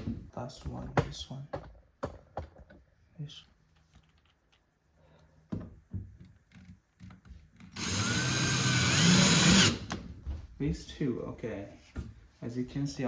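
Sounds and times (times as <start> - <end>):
parts knocking and clicking: 0.9 - 2.9
power drill whining: 7.7 - 10.0.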